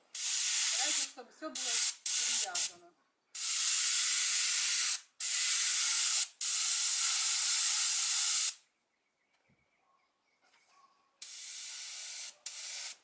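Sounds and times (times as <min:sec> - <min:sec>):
paint spray gun hissing: 0:00.1 - 0:02.7, 0:03.4 - 0:08.6, 0:11.2 - 0:13.0.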